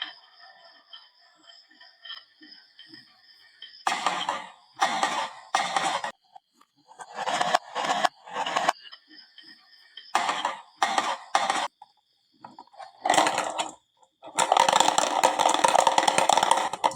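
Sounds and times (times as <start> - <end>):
marbles rattling down wooden run: 10.2 - 11.7, 12.4 - 16.9.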